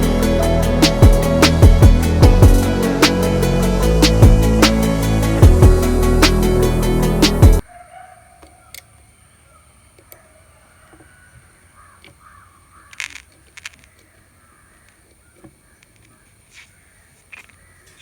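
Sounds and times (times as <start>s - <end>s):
high-pitched whine: 0.0s - 7.6s
music: 0.0s - 7.6s
faint bird calls: 7.7s - 18.0s.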